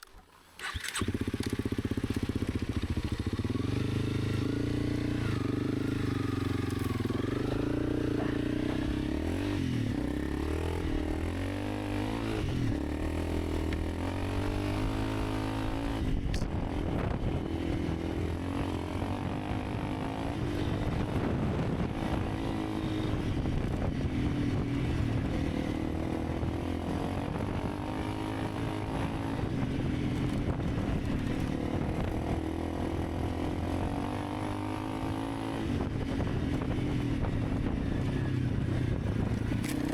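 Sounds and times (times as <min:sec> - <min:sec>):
motorcycle engine running: 0:00.6 - 0:39.9.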